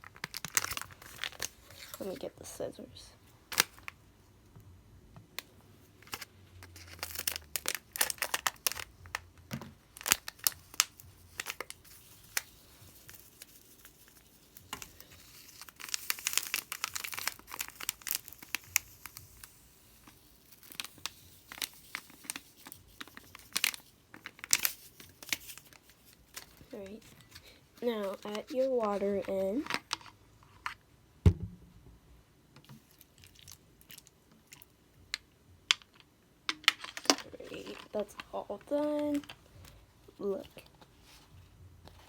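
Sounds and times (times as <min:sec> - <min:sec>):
packet crinkling: 0:00.0 - 0:02.3, 0:06.0 - 0:09.2, 0:09.8 - 0:30.1, 0:36.7 - 0:39.7.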